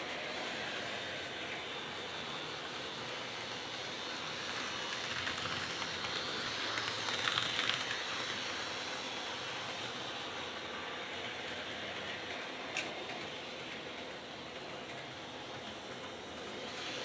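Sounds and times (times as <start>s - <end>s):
model train motor whirring: 0.0s - 13.8s, 14.8s - 17.0s.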